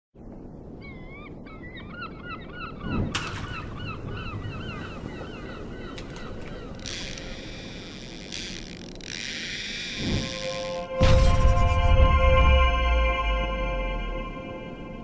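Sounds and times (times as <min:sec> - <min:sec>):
bird calling: 0:00.8 - 0:11.0
sudden thump: 0:11.0 - 0:12.7
low rumble: 0:11.0 - 0:15.0.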